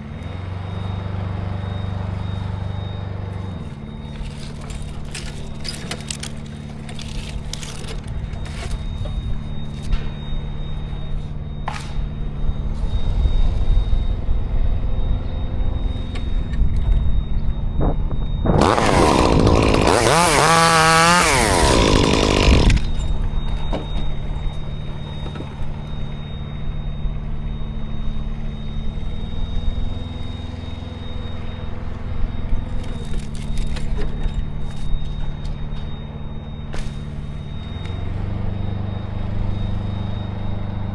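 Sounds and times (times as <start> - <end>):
chainsaw revving and cutting: 3.3 - 8.9, 18.6 - 23.1.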